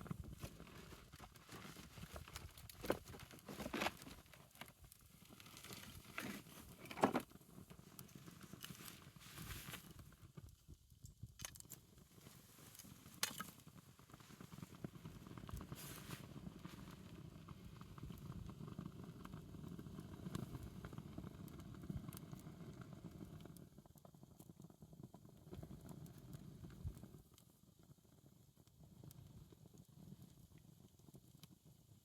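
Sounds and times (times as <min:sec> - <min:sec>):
wood fire crackling: 0:00.0 - 0:24.7.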